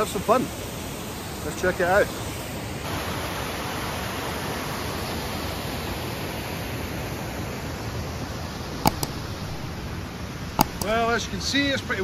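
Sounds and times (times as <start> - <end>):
sharp click: 8.9 - 11.1.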